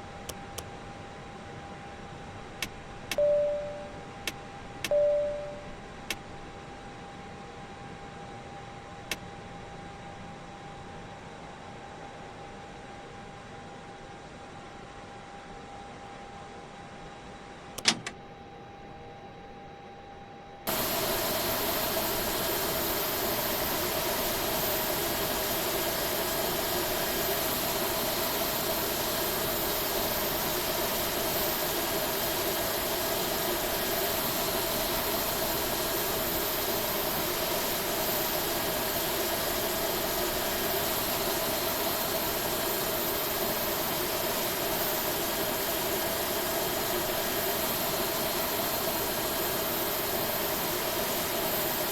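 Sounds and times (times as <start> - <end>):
faint steady tone: 3.2 - 4.1, 4.9 - 5.9
jet engines running: 20.7 - 51.9.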